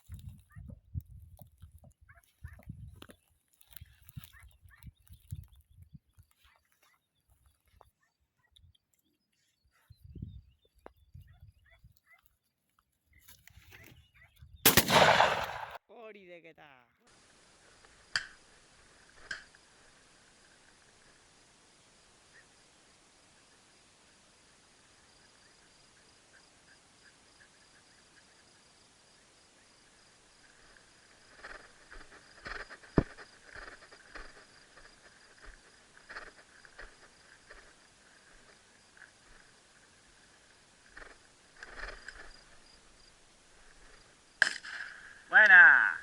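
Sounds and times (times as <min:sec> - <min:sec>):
insects trilling: 0:17.1 - 0:46.0.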